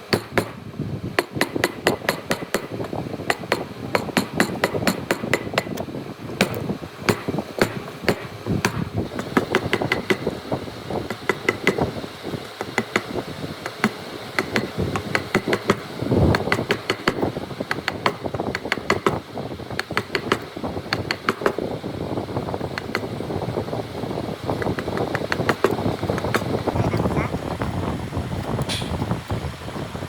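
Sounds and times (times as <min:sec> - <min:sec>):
chisel tapping wood: 0:12.6 - 0:19.2.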